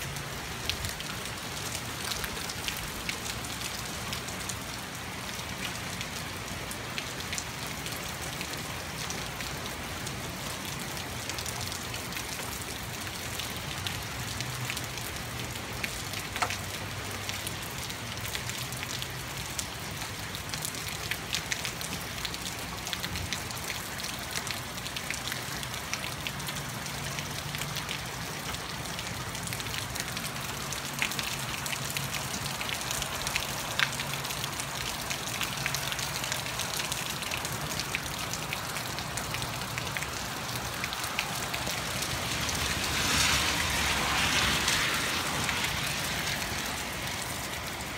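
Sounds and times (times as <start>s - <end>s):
heavy rain hissing: 40.2s - 47.9s.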